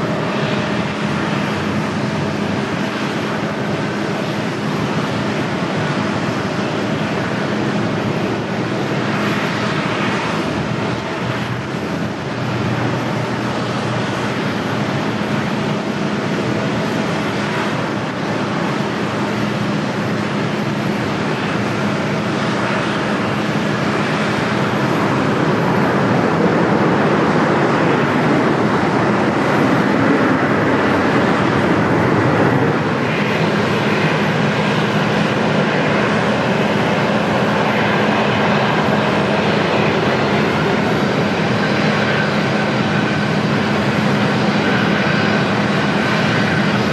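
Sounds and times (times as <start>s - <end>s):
jet engines running: 0.0s - 46.9s.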